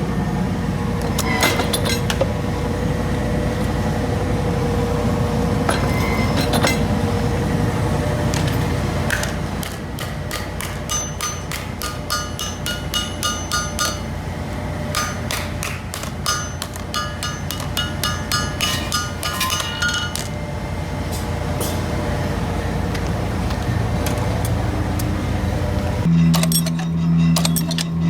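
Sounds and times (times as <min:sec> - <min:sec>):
hammer striking steel anvil: 0:05.7 - 0:06.9, 0:08.3 - 0:14.3, 0:14.9 - 0:20.4, 0:21.1 - 0:22.0, 0:26.0 - 0:28.0.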